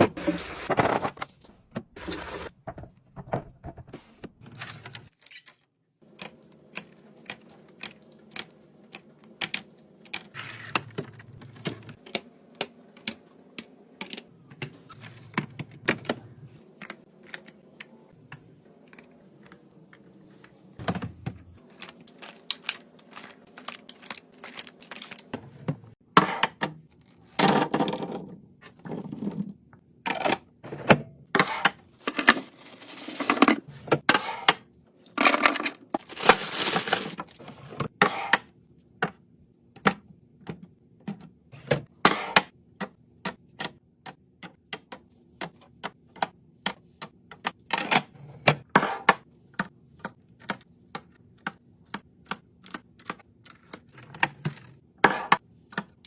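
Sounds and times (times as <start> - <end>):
packaging rustling and crinkling: 21.7 - 25.3, 36.0 - 37.5.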